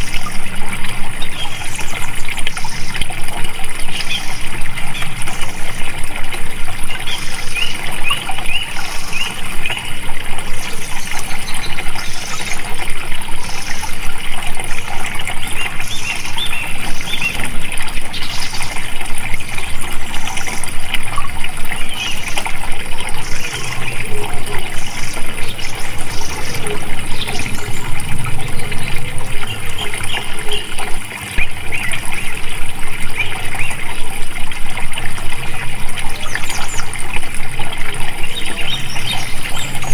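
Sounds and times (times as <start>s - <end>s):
water flowing and splashing: 0.0s - 39.9s
bird chirps: 23.1s - 33.8s.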